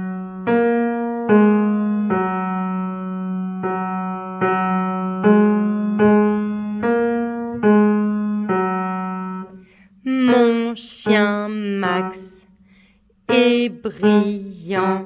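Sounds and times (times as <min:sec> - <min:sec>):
piano single-note melody: 0:00.0 - 0:12.4.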